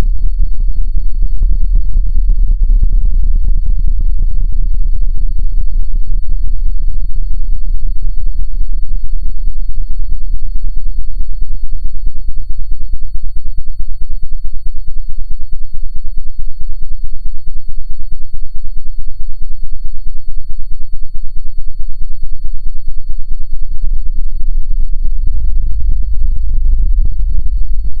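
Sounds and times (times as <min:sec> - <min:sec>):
low pulsing drone: 0:00.0 - 0:10.7, 0:23.4 - 0:28.0
high-pitched whine: 0:00.0 - 0:12.5, 0:22.0 - 0:28.0.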